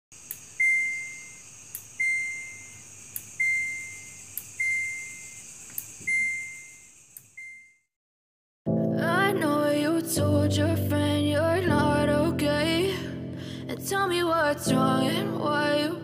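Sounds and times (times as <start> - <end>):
high electronic beep: 0.6 - 1.4, 2.0 - 2.8, 3.4 - 5.4, 6.1 - 7.8.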